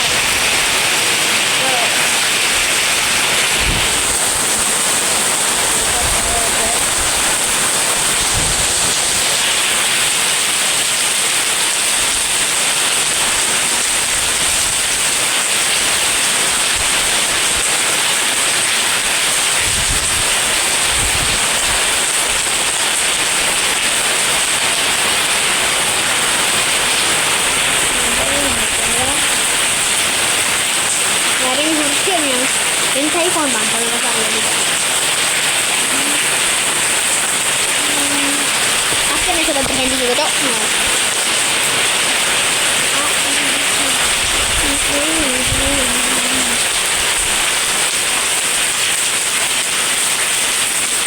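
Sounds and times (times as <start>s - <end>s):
heavy rain hissing: 0.0s - 51.0s
wind gusts buffeting microphone: 2.5s - 9.7s, 19.6s - 22.0s, 26.1s - 30.3s, 35.6s - 47.5s.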